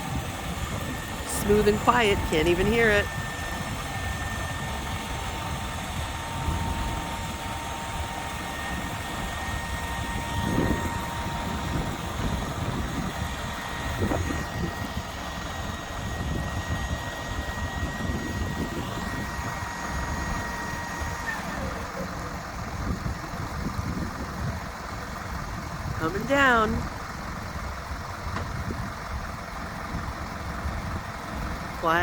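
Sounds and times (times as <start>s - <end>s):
faint hydraulic whine: 0.0s - 25.3s
diesel truck engine running: 0.0s - 32.0s.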